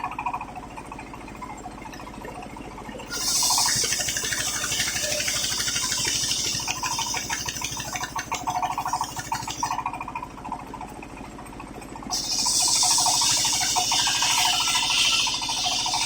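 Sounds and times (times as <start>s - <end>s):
engine running: 0.0s - 16.0s
circular saw cutting wood: 3.1s - 9.8s, 12.1s - 16.0s
saw blade spinning freely: 3.1s - 9.8s, 12.1s - 16.0s.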